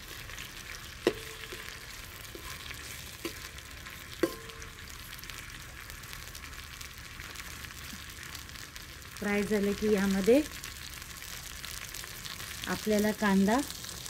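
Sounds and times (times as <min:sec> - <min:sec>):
spices sizzling in hot oil: 0:00.0 - 0:14.0
metal spoon clinking pot: 0:01.0 - 0:02.6, 0:04.2 - 0:04.7.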